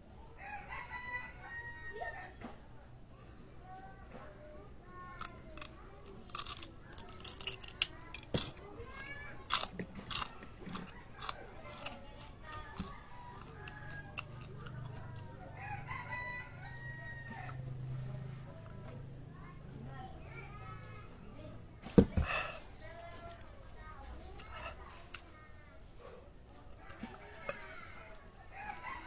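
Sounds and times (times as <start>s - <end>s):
rooster crowing: 0.4s - 2.4s, 15.5s - 17.6s, 26.9s - 29.0s
crunching and chewing peppers: 5.0s - 18.8s, 22.2s - 29.0s.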